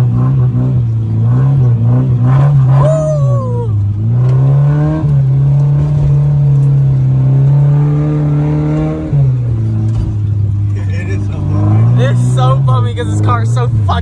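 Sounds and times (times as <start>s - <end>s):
car engine under throttle: 0.0s - 14.0s.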